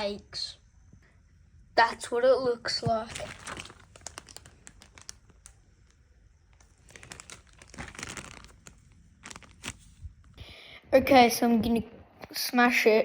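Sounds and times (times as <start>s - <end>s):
faint handling rustling: 2.5s - 10.4s.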